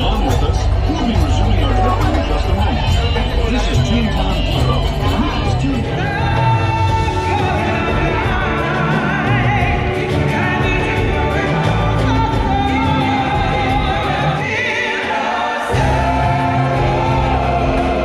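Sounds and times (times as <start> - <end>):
choir singing: 0.0 - 18.0.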